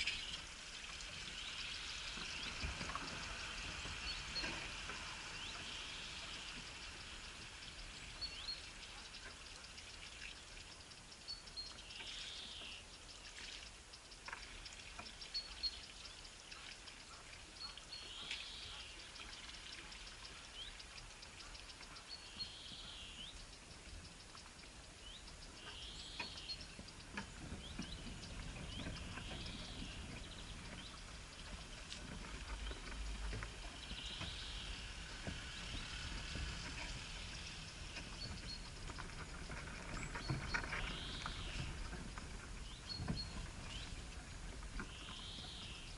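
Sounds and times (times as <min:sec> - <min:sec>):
bird calling: 0:14.0 - 0:45.9.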